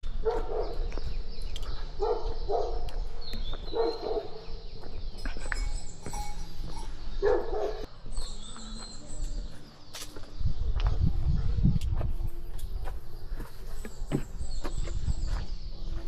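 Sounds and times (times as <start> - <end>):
dog barking: 0.2 - 0.8, 2.0 - 2.9, 3.7 - 4.5, 7.2 - 7.9.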